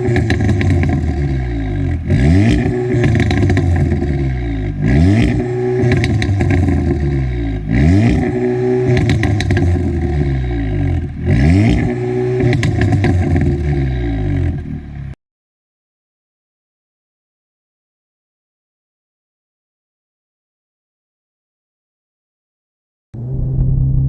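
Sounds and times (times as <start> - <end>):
car engine accelerating hard: 0.0 - 15.2, 23.2 - 24.0
exhaust crackles: 0.0 - 15.2, 23.2 - 24.0.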